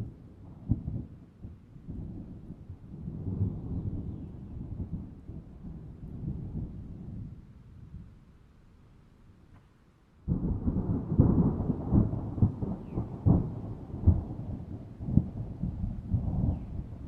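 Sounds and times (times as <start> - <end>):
thunder clap and rolling cracks: 10.3 - 17.0.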